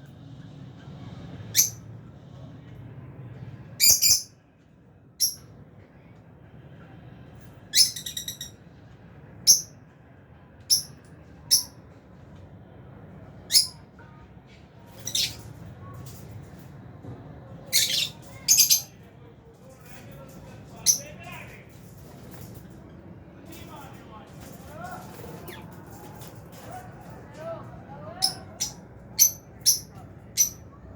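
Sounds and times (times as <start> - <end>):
lovebirds chirping and squawking: 1.5 - 1.8, 3.8 - 4.3, 7.7 - 8.6, 14.9 - 15.5, 17.7 - 19.0, 28.2 - 30.6.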